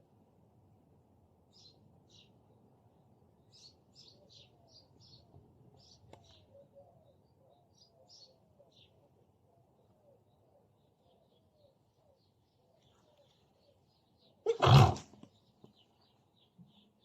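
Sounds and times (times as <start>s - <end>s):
small birds chirping: 9.8s - 17.0s.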